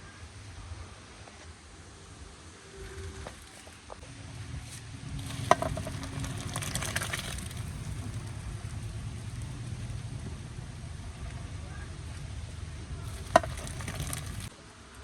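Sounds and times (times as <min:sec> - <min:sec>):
crackling: 0:02.6 - 0:14.6.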